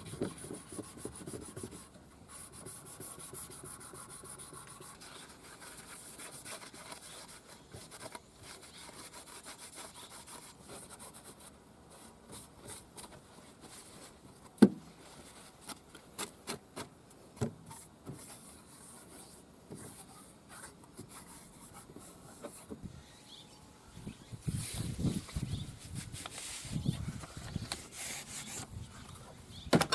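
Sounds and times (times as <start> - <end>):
rubbing and scraping metal: 21.1 - 29.6.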